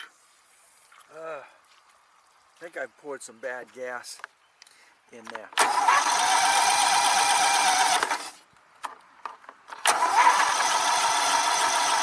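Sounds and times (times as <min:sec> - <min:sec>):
electric starter cranking engine: 0:05.6 - 0:08.4, 0:09.7 - 0:12.0.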